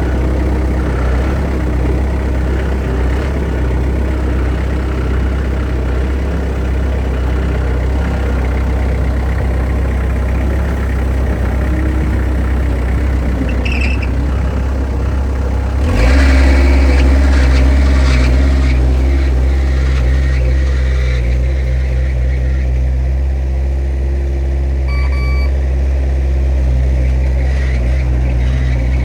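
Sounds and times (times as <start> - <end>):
skid-steer engine running: 0.0 - 29.0.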